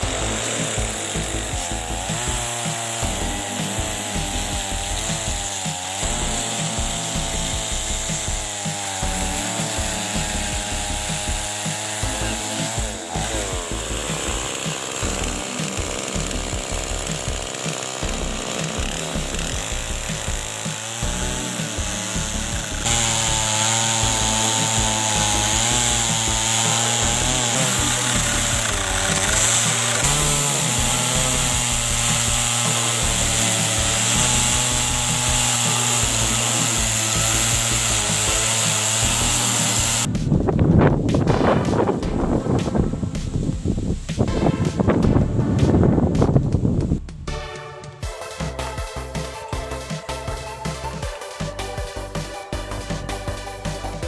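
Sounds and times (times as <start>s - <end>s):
chainsaw cutting into log: 0.0s - 40.4s.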